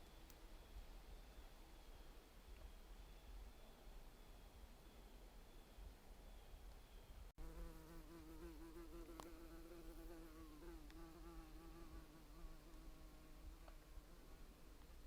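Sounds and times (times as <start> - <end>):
flying insect buzzing: 7.4 - 14.6.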